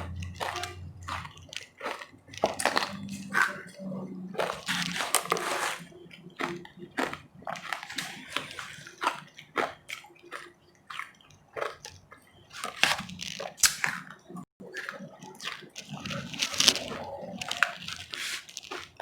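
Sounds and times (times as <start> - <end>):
crunching ice: 0.0 - 19.0
soft chewing: 0.0 - 19.0.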